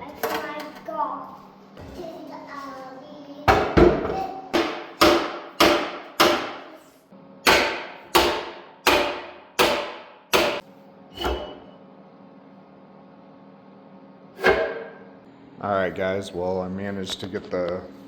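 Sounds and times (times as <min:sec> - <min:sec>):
hammer striking metal axle: 0:07.4 - 0:10.6.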